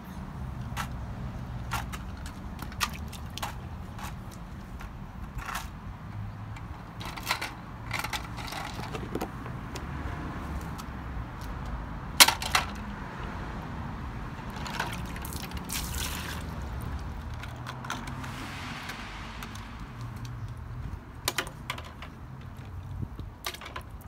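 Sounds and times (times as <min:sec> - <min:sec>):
toy cars clacking: 0:01.6 - 0:05.8, 0:06.5 - 0:09.8, 0:12.2 - 0:12.8, 0:21.2 - 0:22.2
light water splashing: 0:14.7 - 0:17.0.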